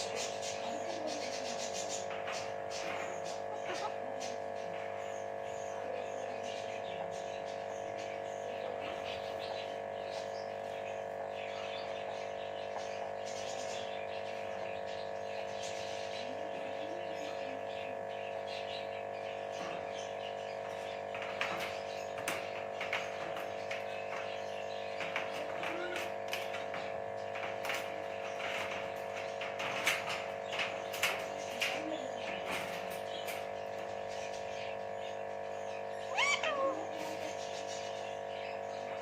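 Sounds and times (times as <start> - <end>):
steady background hum: 0.0 - 39.0
parrot chirping and calling: 35.7 - 38.6.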